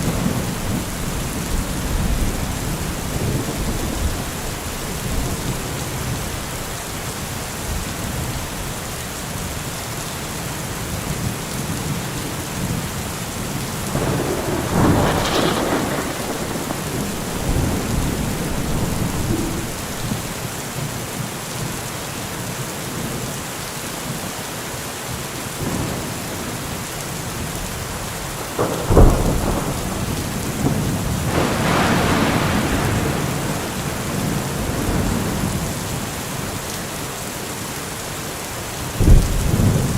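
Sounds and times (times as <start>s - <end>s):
thunder rumbling: 0.0s - 6.8s, 13.8s - 20.5s, 27.3s - 36.0s, 38.9s - 39.9s
steady rain falling: 0.0s - 39.9s
sharp thunder crack: 13.9s - 20.4s, 28.6s - 35.5s.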